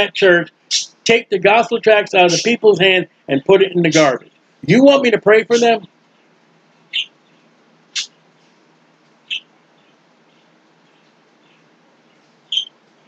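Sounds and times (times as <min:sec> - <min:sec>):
small bird chirping: 0:00.7 - 0:01.0, 0:06.8 - 0:08.1, 0:09.2 - 0:12.8.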